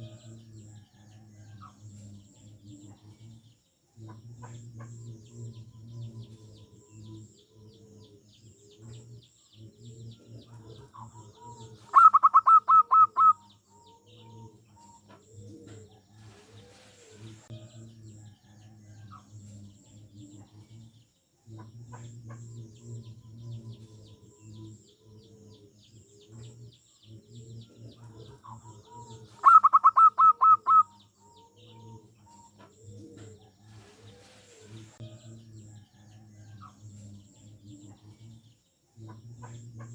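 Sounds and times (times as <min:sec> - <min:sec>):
dove rhythmic cooing burst: 0:00.0 - 0:39.9
faint high chirps: 0:11.9 - 0:14.1, 0:28.4 - 0:33.4.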